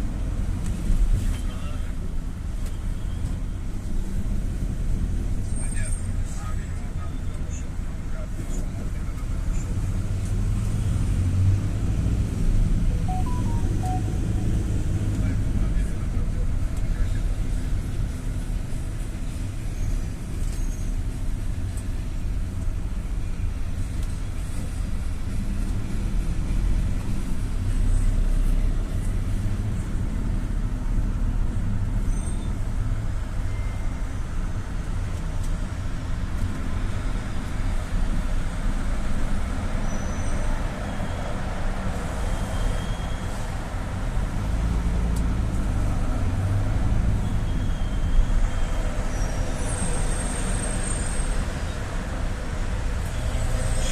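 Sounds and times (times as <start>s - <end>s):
minibus engine and road rumble: 0.0s - 53.9s
faint high chirps: 13.1s - 14.6s.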